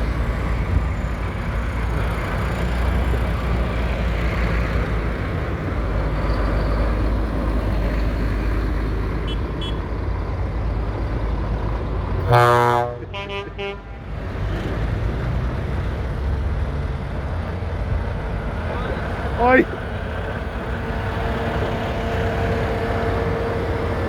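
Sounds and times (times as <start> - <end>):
tractor diesel engines running: 0.0 - 24.0
loud horn: 12.2 - 14.1.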